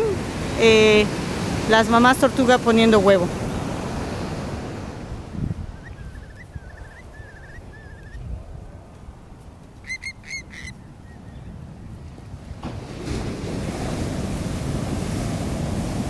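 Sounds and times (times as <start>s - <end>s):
birds calling: 0.0s - 9.0s, 9.6s - 11.7s
ocean surf rumble: 0.0s - 16.0s
wind on microphone: 0.0s - 16.0s.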